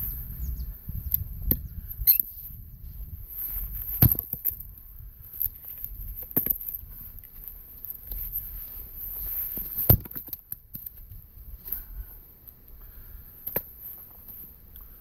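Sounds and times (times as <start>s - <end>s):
axe splitting wood: 9.8s - 10.4s.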